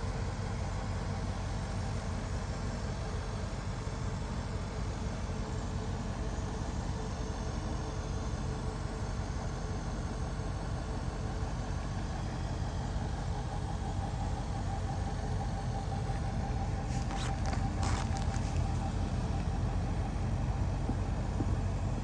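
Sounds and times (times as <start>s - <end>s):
car engine rumbling: 11.9s - 22.0s.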